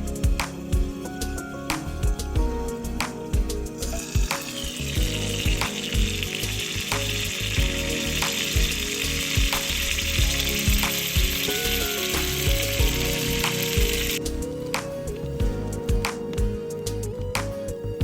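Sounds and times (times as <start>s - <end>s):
light background music: 0.0s - 18.0s
food frying sizzle: 3.7s - 14.2s.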